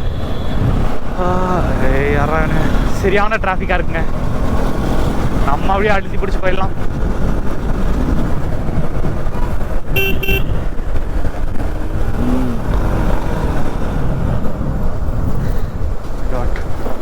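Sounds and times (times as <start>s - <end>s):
motorcycle engine: 0.0s - 17.0s
wind noise: 0.0s - 17.0s
vehicle horn tooting: 9.9s - 10.7s.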